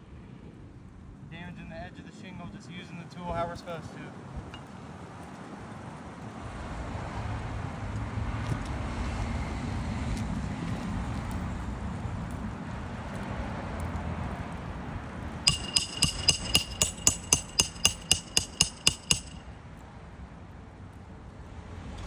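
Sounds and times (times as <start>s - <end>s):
hammer striking metal: 15.5s - 19.5s.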